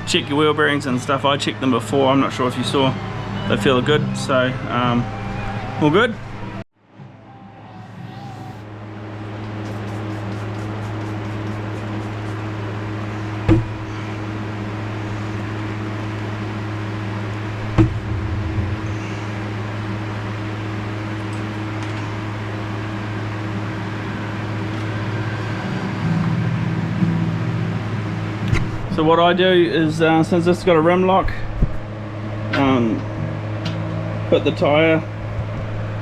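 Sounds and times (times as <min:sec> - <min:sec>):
low mechanical hum: 0:00.0 - 0:36.0
sharp knocks: 0:17.7 - 0:19.1.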